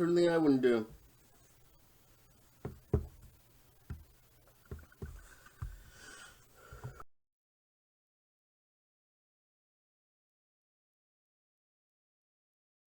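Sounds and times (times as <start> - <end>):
handling knocks and clicks: 2.7 - 4.1, 4.7 - 5.9.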